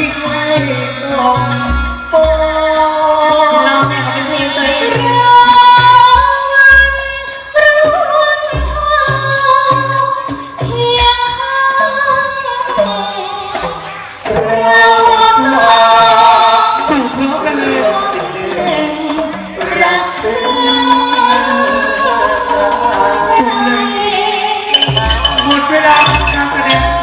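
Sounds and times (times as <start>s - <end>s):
band accompaniment with bass beat: 0.0s - 27.0s
person singing with vibrato: 14.3s - 27.0s.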